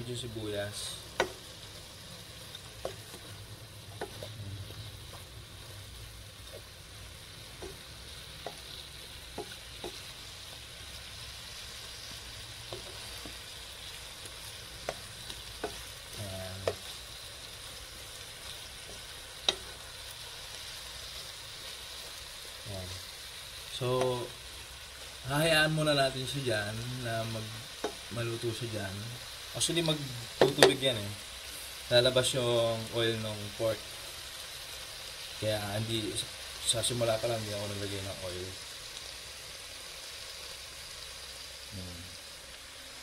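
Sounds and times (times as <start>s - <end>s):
pork and onions sizzling: 0.0s - 43.0s
spatula clicking and scraping pot: 2.4s - 4.4s, 7.5s - 10.6s, 12.6s - 13.6s, 14.2s - 17.0s, 18.8s - 19.8s, 27.7s - 28.1s.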